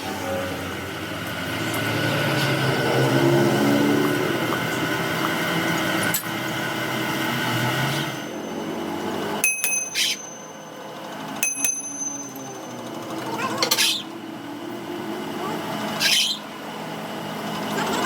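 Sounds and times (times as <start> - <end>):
workshop machinery running: 0.0 - 18.0
sharp metal strikes: 9.4 - 10.7, 11.4 - 12.6.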